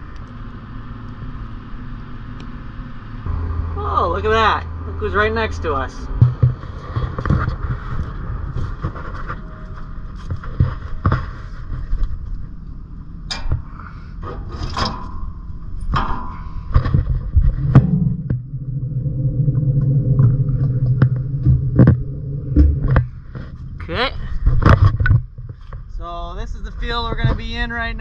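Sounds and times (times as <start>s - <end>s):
knocks and rattles: 6.1s - 12.4s, 13.3s - 23.8s.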